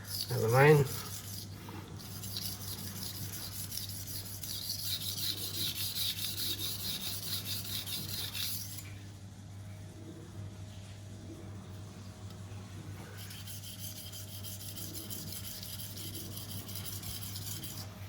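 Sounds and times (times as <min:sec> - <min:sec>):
knife grinding on whetstone: 0:00.0 - 0:08.8, 0:13.1 - 0:18.0.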